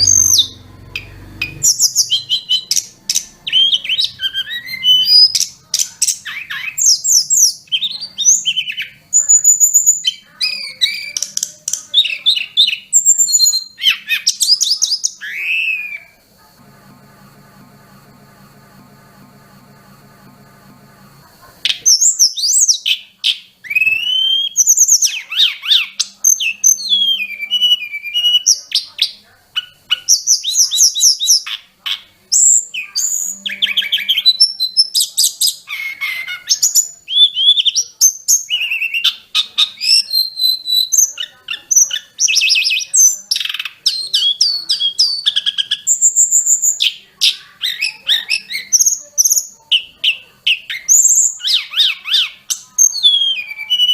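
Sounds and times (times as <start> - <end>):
songbird singing varied song: 0.0 - 16.2, 21.6 - 53.9
faint hum: 0.0 - 39.5.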